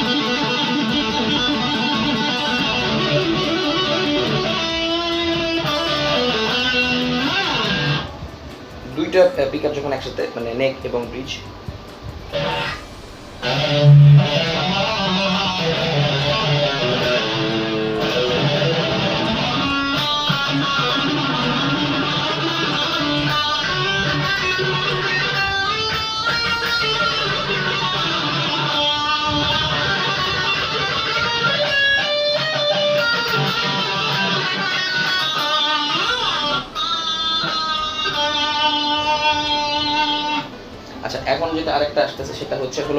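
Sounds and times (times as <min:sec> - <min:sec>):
electric guitar strummed and picked: 0:00.0 - 0:09.4, 0:11.5 - 0:41.0.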